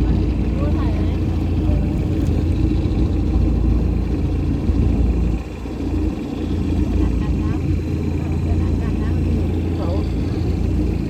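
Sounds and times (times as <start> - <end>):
motorboat engine rumbling: 0.0 - 11.0.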